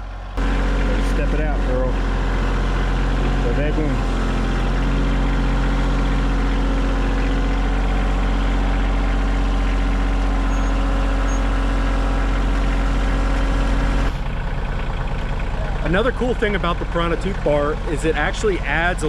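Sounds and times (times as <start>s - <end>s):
tractor engine running steadily: 0.0s - 19.0s.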